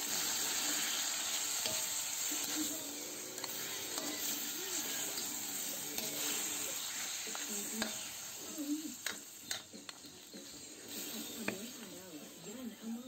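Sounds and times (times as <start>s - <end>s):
meat sizzling in hot oil: 0.0s - 13.0s
metal spatula scraping pan: 0.7s - 8.4s.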